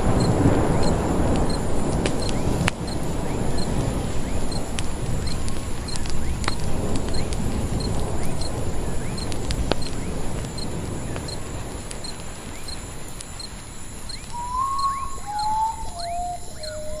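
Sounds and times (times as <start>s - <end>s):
campfire crackling: 0.0s - 17.0s
faint regular chirping: 0.1s - 1.6s, 2.2s - 17.0s
bird's mournful whistled song: 14.1s - 17.0s.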